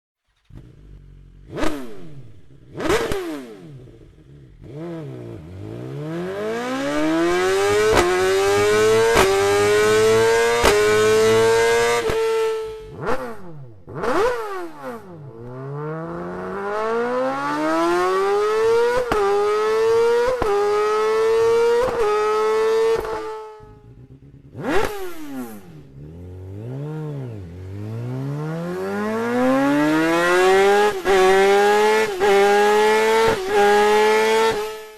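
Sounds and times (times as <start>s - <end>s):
motorcycle engine accelerating: 0.2s - 34.9s
motorcycle engine rev blips: 0.4s - 34.9s
sharp crack at gear shifts: 7.7s - 12.3s.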